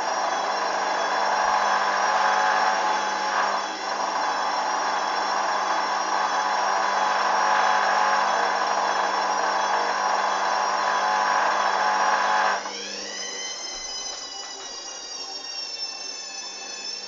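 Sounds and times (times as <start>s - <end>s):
motor whine: 0.0s - 17.0s
washing machine spinning: 0.0s - 17.0s.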